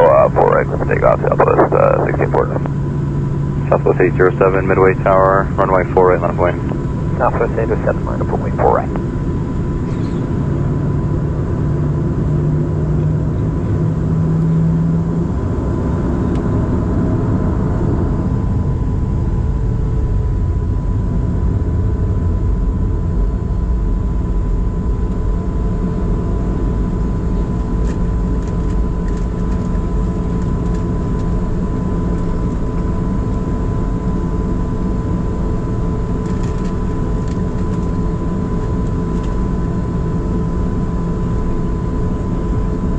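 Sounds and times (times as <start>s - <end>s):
airliner engines idling in cabin: 0.0s - 42.9s.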